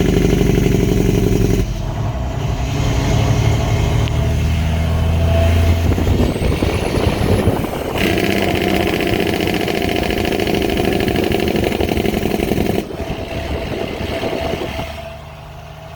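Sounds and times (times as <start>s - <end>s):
diesel engine running: 0.0s - 15.9s
diesel engine brake chatter: 5.8s - 15.5s.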